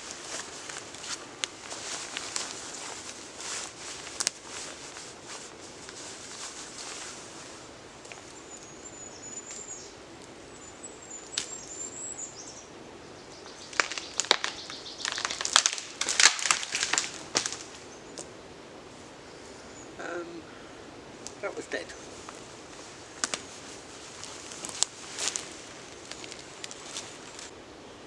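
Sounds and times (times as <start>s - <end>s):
small bird singing: 8.2s - 15.5s
dead wood cracking and snapping: 13.6s - 18.3s, 23.2s - 23.5s, 24.2s - 27.5s.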